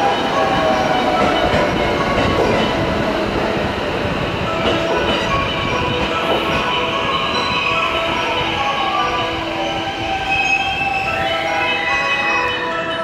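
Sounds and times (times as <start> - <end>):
train wheels rumbling over rails: 0.0 - 11.6.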